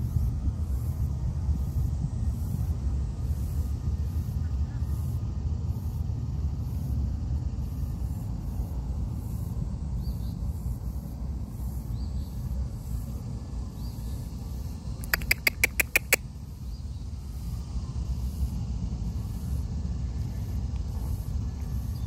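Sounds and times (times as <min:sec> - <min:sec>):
faint high chirps: 0:15.0 - 0:16.2
bird sharp high calls: 0:15.0 - 0:16.3.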